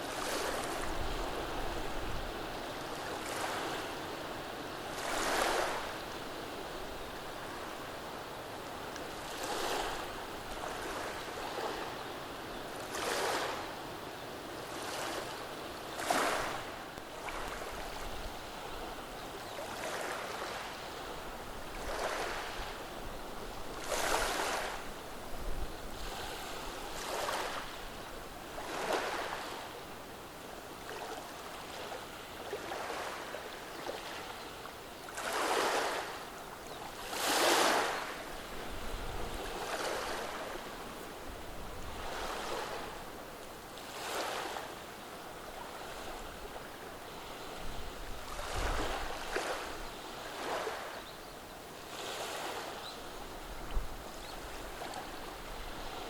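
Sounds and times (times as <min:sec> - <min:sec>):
waves washing over stones: 0:23.6 - 0:24.9, 0:35.2 - 0:36.2, 0:37.0 - 0:41.0.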